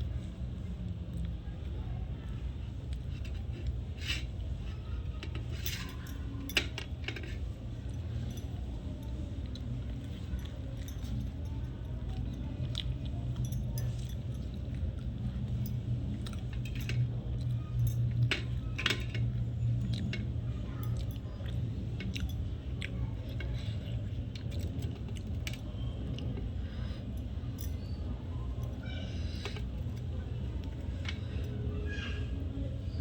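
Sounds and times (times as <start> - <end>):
steady low hum: 0.0 - 33.0
small clicks and clinks: 2.8 - 31.7
chewing: 7.9 - 18.3, 19.3 - 28.0.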